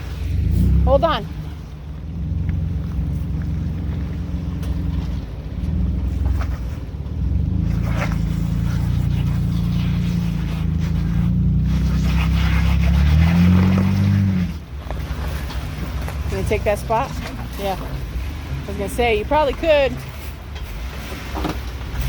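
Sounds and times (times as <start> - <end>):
engine working under load: 0.0 - 22.0.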